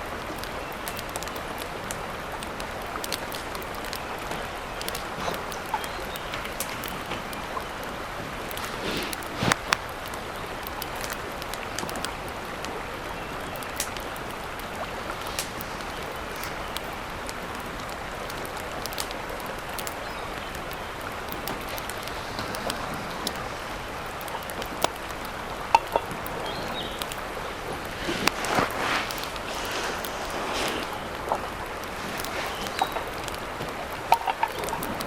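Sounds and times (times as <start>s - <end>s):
rushing water: 0.0s - 35.0s
sharp clicks: 13.5s - 35.0s.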